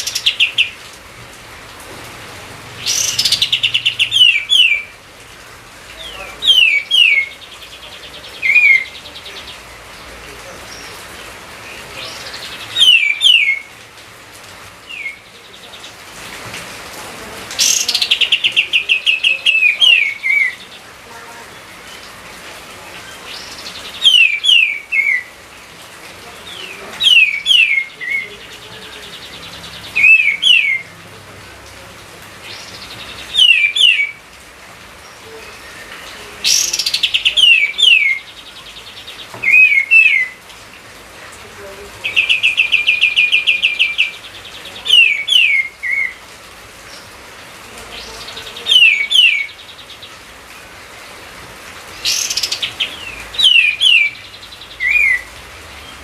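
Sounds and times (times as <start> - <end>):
songbird whistling song: 2.8 - 4.9, 6.1 - 9.6, 12.1 - 13.7, 14.9 - 15.3, 23.3 - 25.3, 26.6 - 28.3, 29.2 - 30.9, 32.5 - 34.2, 35.5 - 40.4, 42.1 - 46.2, 48.7 - 50.0, 52.0 - 56.0.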